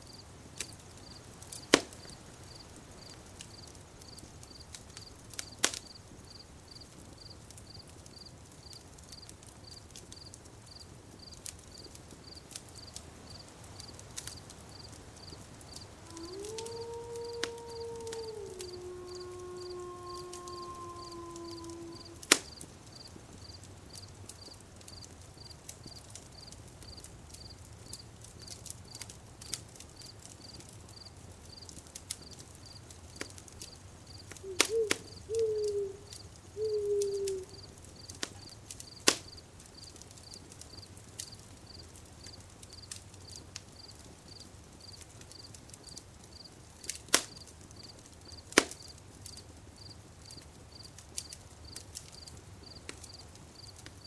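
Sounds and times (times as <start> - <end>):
campfire crackling and popping: 0.0 - 54.0
cricket chirping: 9.6 - 25.5, 34.1 - 40.9.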